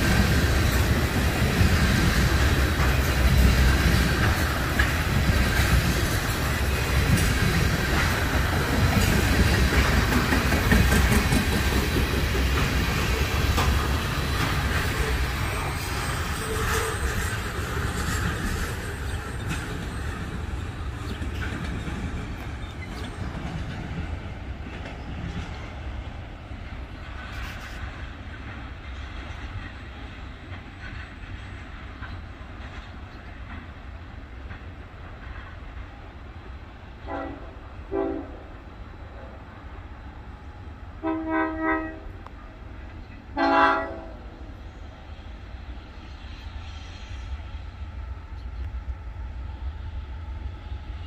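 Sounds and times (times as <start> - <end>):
wheels clicking over rail joints: 0.0 - 36.0
freight train rumbling past: 0.0 - 51.0.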